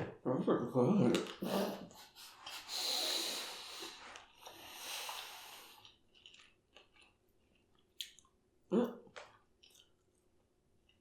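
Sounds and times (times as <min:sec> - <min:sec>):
person breathing heavily: 0:01.4 - 0:05.8.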